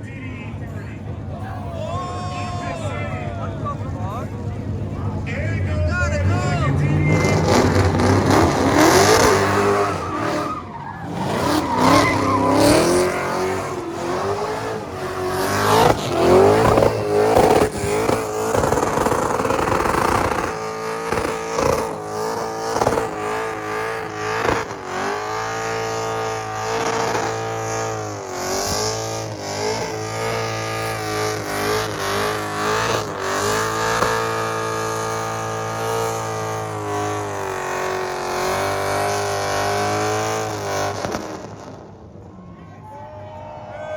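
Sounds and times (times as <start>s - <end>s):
car engine revving hard: 3.9s - 42.0s
tyres squealing: 6.0s - 28.2s.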